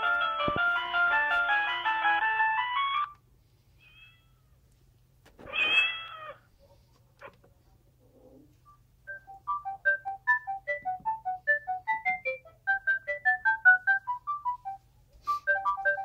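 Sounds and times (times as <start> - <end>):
phone ringtone melody: 0.0 - 3.2, 9.1 - 16.0
meow-like cry: 3.8 - 4.5, 5.4 - 6.5.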